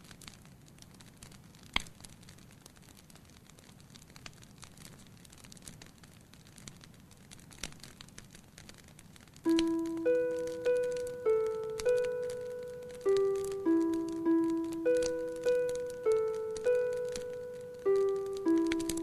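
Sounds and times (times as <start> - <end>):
wood fire crackling: 0.0 - 19.0
plucked piano-like music: 9.5 - 19.0.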